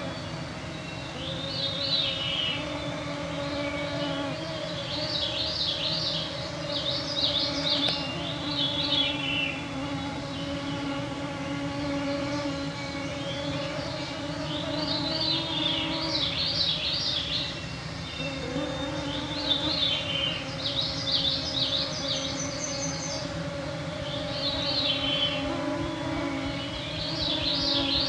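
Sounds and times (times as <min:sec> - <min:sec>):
songbirds singing: 0:00.0 - 0:28.0
mosquitoes whining: 0:18.2 - 0:28.0.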